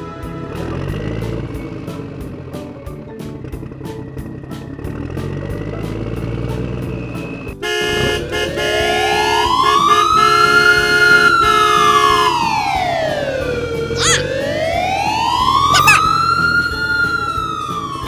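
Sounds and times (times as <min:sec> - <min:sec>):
slow wailing siren: 0:07.8 - 0:18.0.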